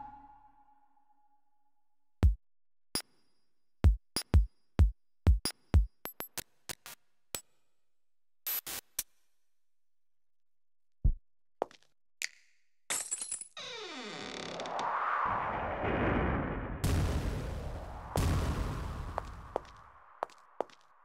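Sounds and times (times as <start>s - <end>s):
electronic kick drums: 3.9s - 5.9s.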